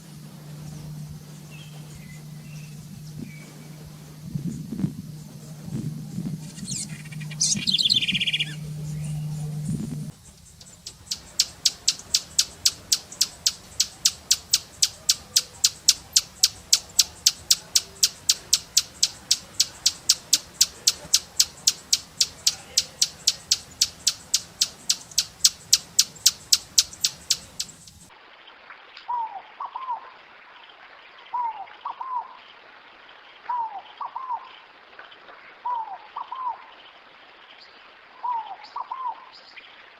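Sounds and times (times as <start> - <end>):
birds chirping: 0.0 - 28.1
low hum: 0.0 - 28.1.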